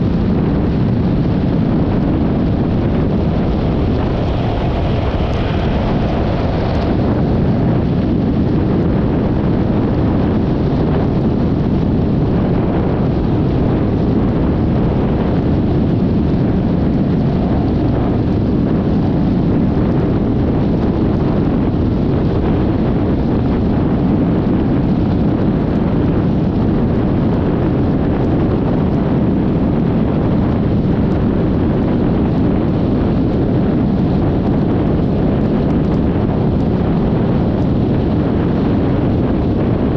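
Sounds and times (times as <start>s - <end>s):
wind rush on microphone: 0.0s - 39.9s
scooter engine and road noise: 1.1s - 9.4s.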